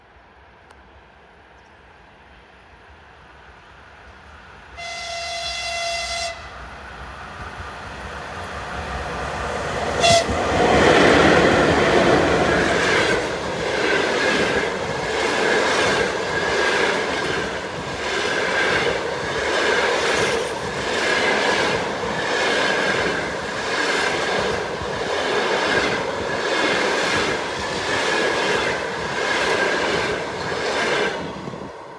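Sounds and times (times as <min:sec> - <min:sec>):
train passing: 0:00.3 - 0:31.9
wheels clickety-clack on rail joints: 0:07.0 - 0:31.9.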